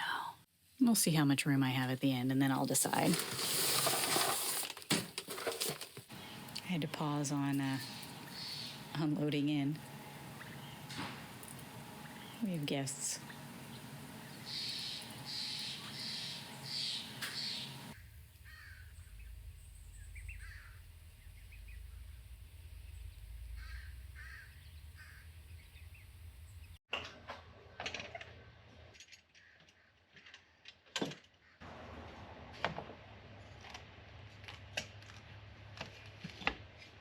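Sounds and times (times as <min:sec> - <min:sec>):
low hum: 0:06.1 - 0:26.8
crow cawing: 0:18.5 - 0:18.9, 0:23.6 - 0:25.2.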